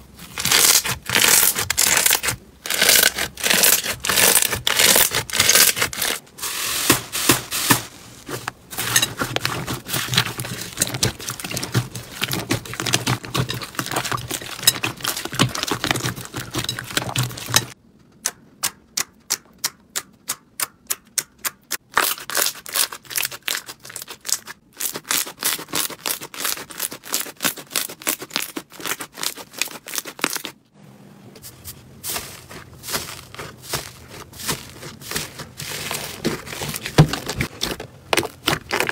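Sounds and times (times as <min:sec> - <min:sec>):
slime crackling and popping: 0:00.3 - 0:06.2.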